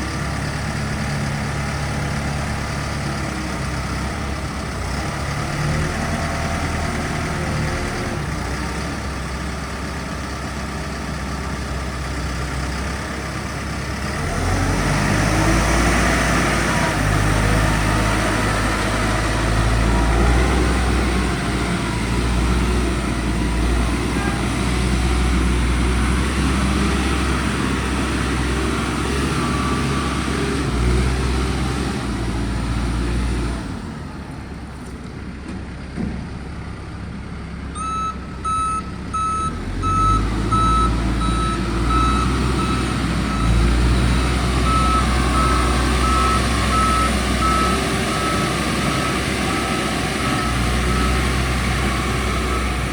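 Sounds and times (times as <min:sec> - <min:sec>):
diesel engine rumbling: 0:00.0 - 0:52.9
back-up alarm beeping: 0:37.8 - 0:43.6.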